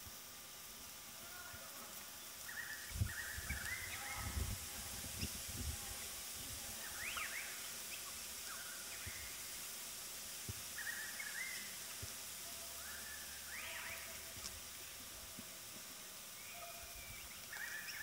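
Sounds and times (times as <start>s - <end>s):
steady hiss: 0.0s - 18.0s
faint bird chirps and warbling: 2.2s - 6.1s, 6.7s - 9.4s, 10.7s - 11.8s, 12.4s - 14.4s, 16.3s - 18.0s.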